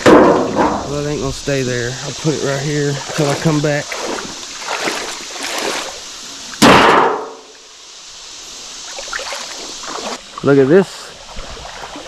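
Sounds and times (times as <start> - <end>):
metal panel banging down: 0.0 - 1.0, 6.6 - 7.5.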